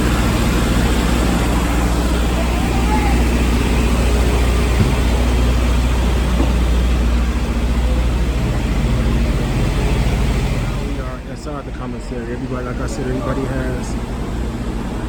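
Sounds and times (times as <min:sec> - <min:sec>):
large engine running: 0:00.0 - 0:15.0
short knock: 0:04.7 - 0:05.5.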